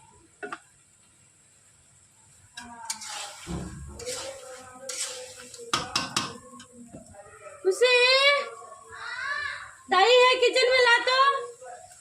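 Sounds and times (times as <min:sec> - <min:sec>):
frying food sizzling: 0:00.0 - 0:12.0
spoon scraping a pot: 0:02.6 - 0:06.6.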